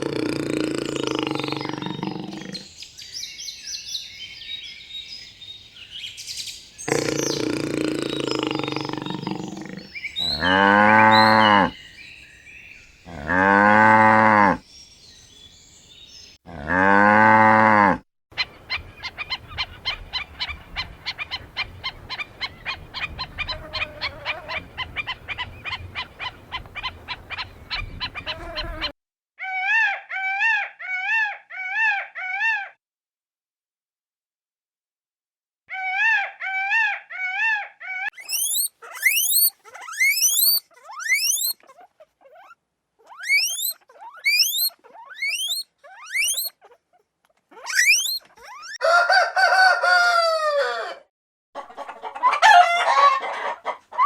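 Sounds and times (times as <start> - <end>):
cow mooing: 6.9 - 11.8, 13.1 - 14.6, 16.5 - 18.0
rapid short animal calls: 6.9 - 11.8, 35.7 - 48.8
wavering high calls: 38.2 - 41.6, 43.2 - 46.6, 47.6 - 48.9.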